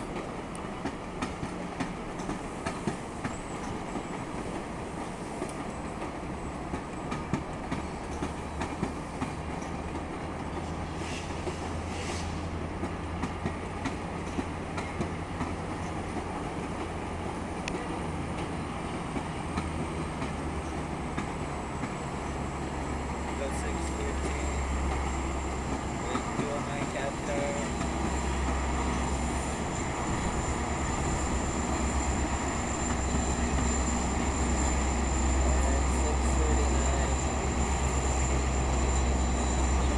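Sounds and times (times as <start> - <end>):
locomotive drone: 0.0 - 39.9
train wheels clicking over rail joints: 0.0 - 39.9
short hissing: 10.9 - 12.6.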